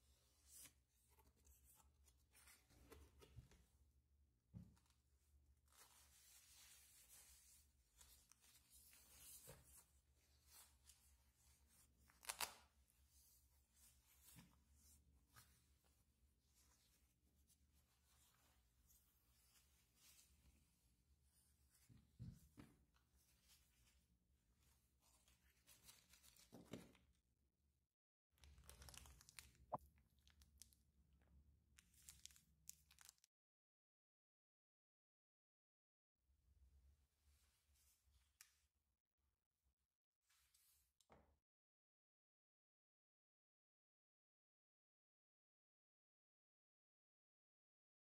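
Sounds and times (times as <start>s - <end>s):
packaging rustling and crinkling: 28.5s - 29.5s, 32.1s - 33.3s.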